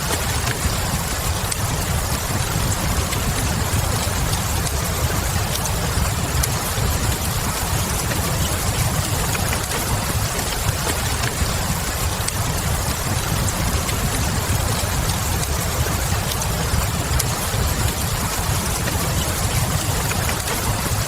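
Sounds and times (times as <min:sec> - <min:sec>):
fireplace fire crackling: 0:00.0 - 0:21.0
steady rain: 0:00.0 - 0:21.0.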